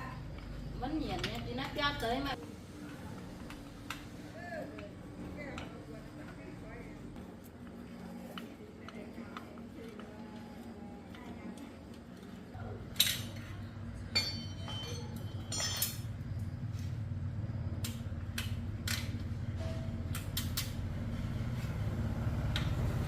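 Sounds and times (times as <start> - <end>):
metal tools clinking: 12.9 - 16.4.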